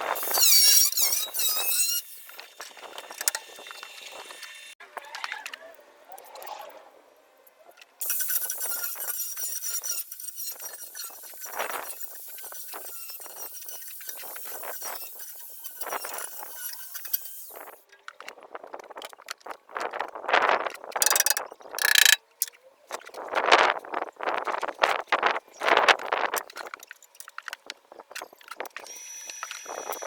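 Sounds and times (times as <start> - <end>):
ratchet-like clicks: 21.0 - 22.2.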